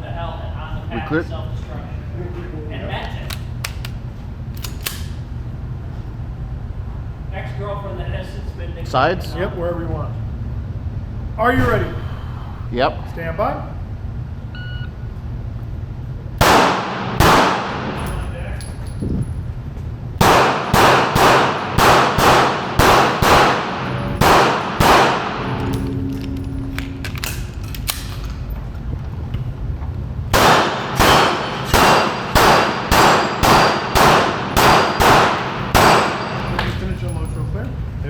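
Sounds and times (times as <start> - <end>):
pistol shots: 16.4 - 18.1, 20.2 - 26.2, 30.3 - 36.7.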